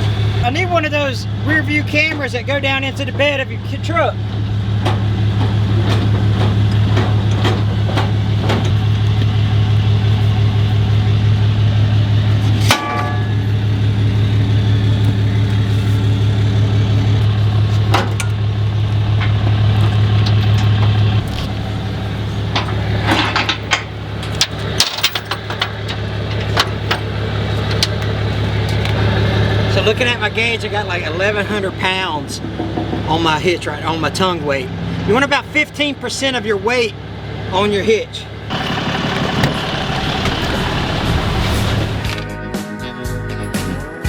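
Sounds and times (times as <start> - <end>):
truck engine idling: 0.0 - 42.2
trailer hitch knocks and clicks: 22.5 - 29.0.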